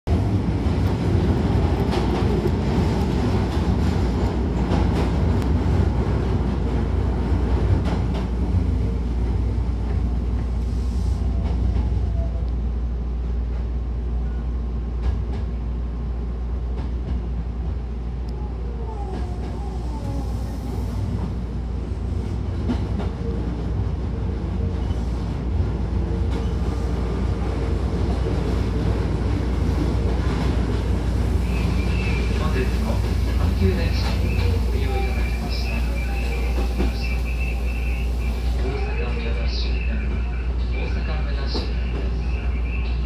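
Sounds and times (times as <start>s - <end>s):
train wheels rumbling on rail: 0.1s - 43.0s
clicks of train wheels: 32.8s - 38.4s.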